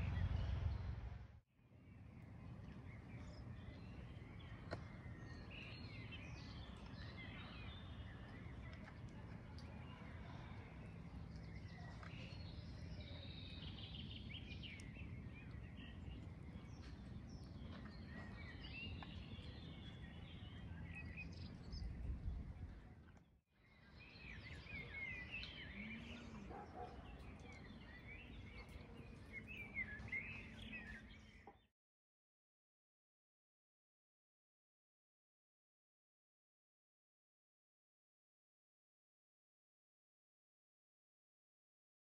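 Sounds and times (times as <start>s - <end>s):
low background rumble: 0.0s - 1.4s
small birds chirping: 1.8s - 31.7s.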